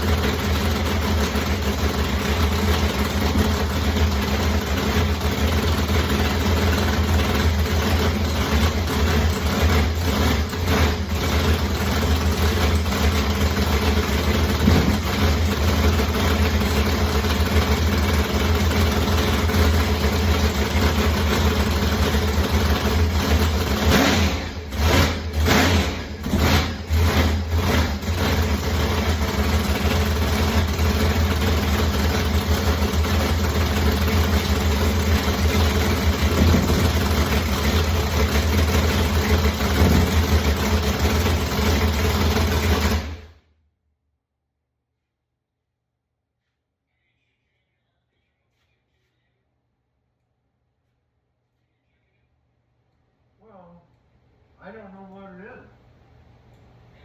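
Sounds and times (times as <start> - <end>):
race engine idling: 0.0 - 43.4.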